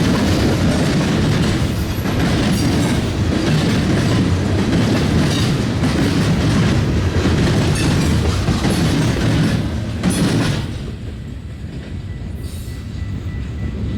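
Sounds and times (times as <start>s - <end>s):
train cars rumbling on rails: 0.0s - 13.9s.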